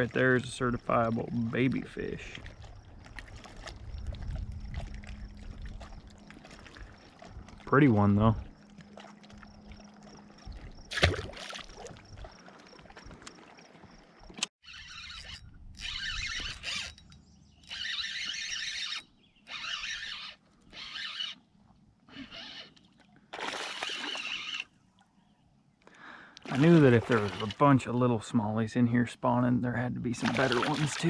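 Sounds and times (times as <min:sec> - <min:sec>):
fishing reel whirring: 0:14.6 - 0:21.4, 0:22.1 - 0:22.8, 0:23.6 - 0:24.7.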